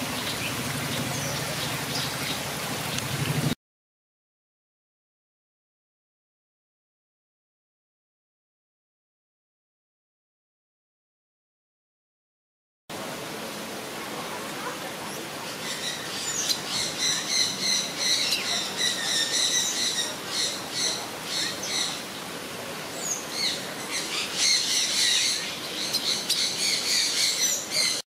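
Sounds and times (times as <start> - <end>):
birds chirping: 0.0 - 3.5, 14.6 - 28.0.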